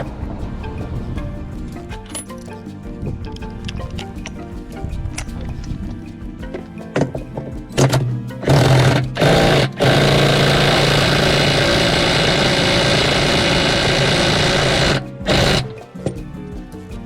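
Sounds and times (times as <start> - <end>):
power tool motor humming and hissing: 8.4 - 15.7.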